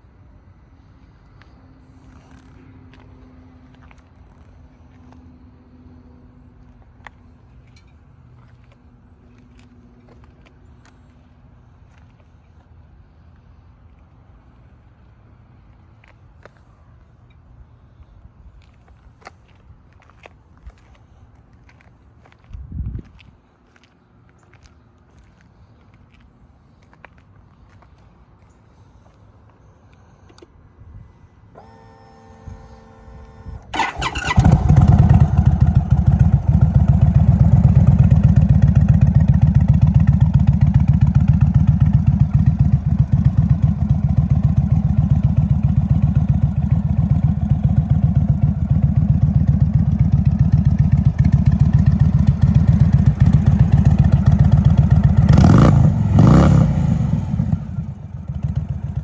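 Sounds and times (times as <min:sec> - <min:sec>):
engine throttle blips: 0:31.5 - 0:59.0
steady starter hum: 0:31.6 - 0:39.4
motorcycle engine idling: 0:31.6 - 0:59.0.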